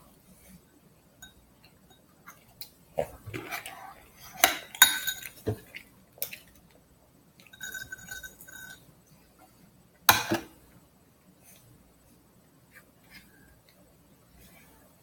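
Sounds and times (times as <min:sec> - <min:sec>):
dishes and utensils clinking: 0:04.4 - 0:06.4, 0:07.4 - 0:08.9.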